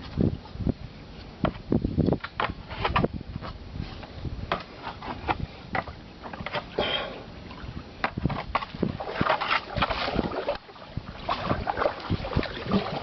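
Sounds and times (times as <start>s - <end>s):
paddle splashing water: 5.8s - 13.0s.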